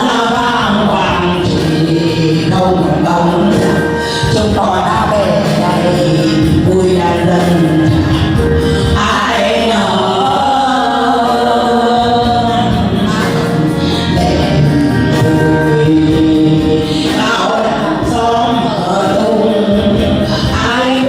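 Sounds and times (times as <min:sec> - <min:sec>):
music: 0:00.0 - 0:21.0
voices singing together: 0:00.0 - 0:21.0.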